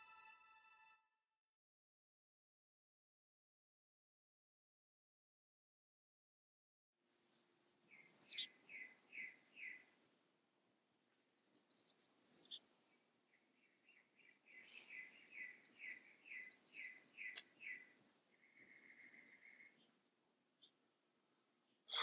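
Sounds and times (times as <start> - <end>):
songbirds chirping: 7.0 - 22.0.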